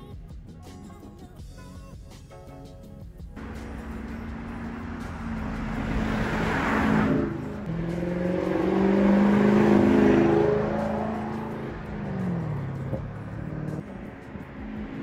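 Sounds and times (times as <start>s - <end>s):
car accelerating past: 3.4s - 15.0s.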